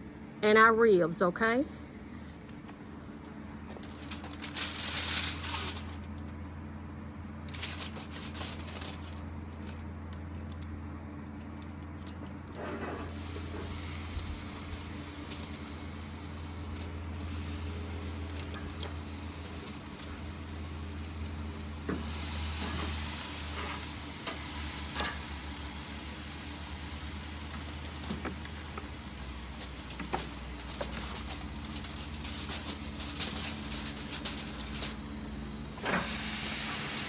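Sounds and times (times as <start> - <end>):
meat sizzling on grill: 12.6 - 37.0.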